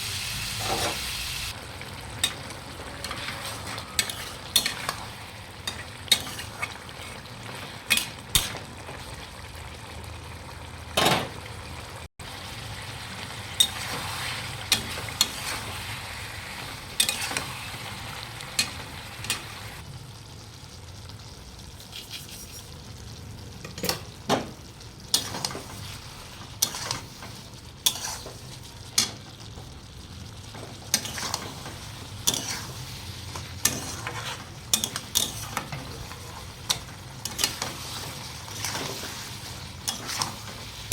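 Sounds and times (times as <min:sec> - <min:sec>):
chutney sizzling in a pan: 0:00.0 - 0:40.9
spatula scraping and knocking pan: 0:02.2 - 0:08.6, 0:30.6 - 0:40.9.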